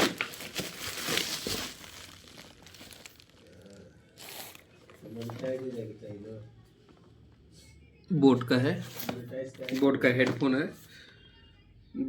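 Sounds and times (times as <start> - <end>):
packaging crinkling and rustling: 0.0 - 5.8.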